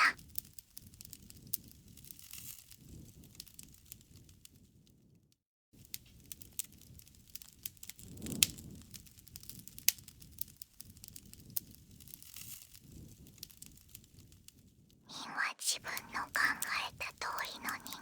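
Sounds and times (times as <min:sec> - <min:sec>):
fire pops and snaps: 0:05.9 - 0:14.7.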